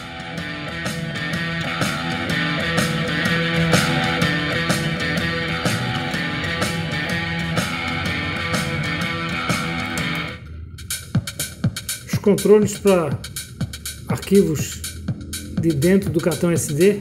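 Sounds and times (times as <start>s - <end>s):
rock music with guitar: 0.0s - 12.0s.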